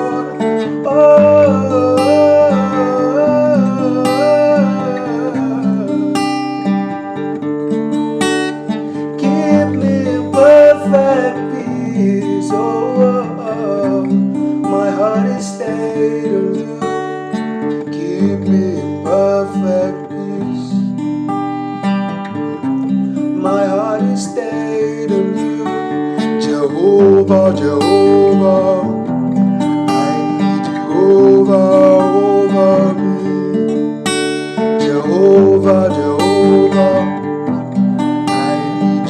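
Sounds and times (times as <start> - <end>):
wordless vocals: 0.0 - 6.8, 8.8 - 17.2, 17.8 - 20.9, 22.6 - 39.0
acoustic guitar strumming: 0.0 - 39.0.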